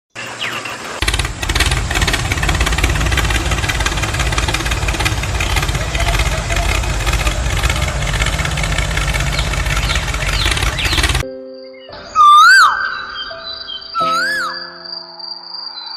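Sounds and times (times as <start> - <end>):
engine rumbling: 0.2 - 11.2.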